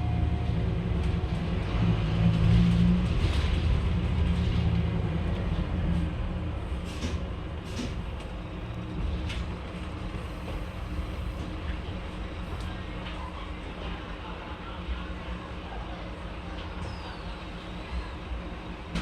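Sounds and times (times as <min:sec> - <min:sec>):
bus diesel engine running: 0:00.0 - 0:14.8.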